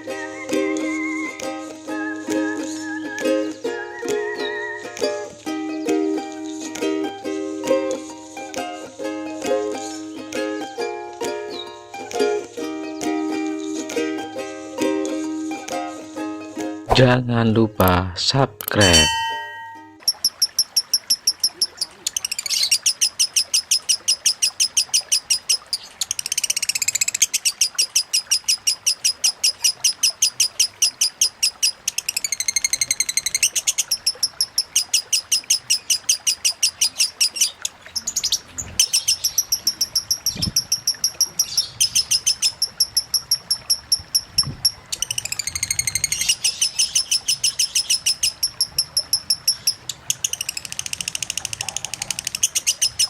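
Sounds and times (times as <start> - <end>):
lovebird chattering trills: 18.8 - 53.0.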